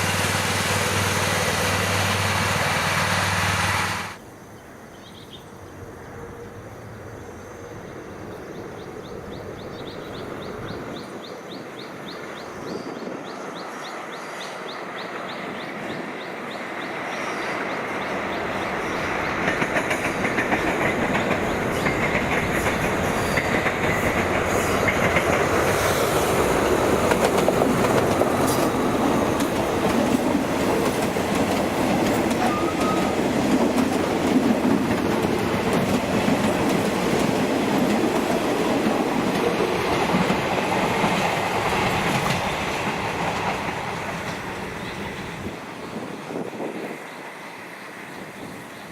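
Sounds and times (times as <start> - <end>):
train approaching: 0.0 - 48.9
wheels clattering over rails: 19.1 - 44.6.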